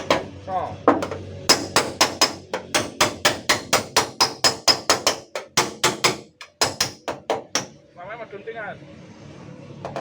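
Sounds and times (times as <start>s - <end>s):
hammer tapping sheet metal: 0.0s - 7.8s.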